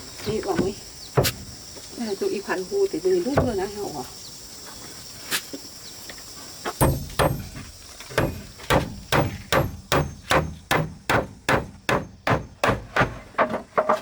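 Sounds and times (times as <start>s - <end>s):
hand tool striking wood: 0.5s - 1.5s, 6.8s - 14.0s.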